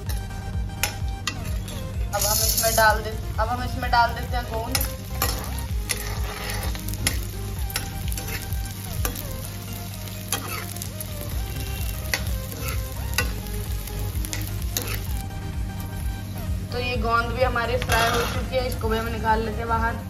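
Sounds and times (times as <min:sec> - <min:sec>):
food sizzling in oil: 0:00.8 - 0:16.7, 0:17.8 - 0:19.2
metal spoon scraping pan: 0:04.7 - 0:07.2, 0:10.3 - 0:10.8, 0:14.4 - 0:15.1, 0:17.8 - 0:18.6.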